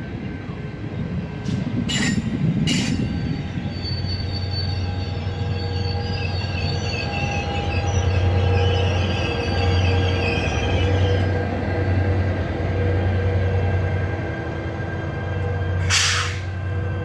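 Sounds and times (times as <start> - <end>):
locomotive drone: 0.0 - 17.0
train wheels squealing: 1.4 - 11.6, 14.9 - 17.0.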